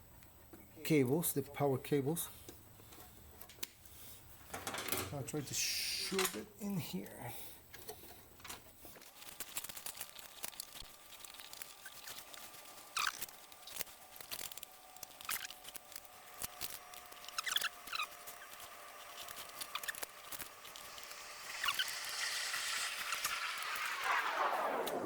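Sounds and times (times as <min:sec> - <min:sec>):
cable scratching and rustling: 0:08.5 - 0:25.0.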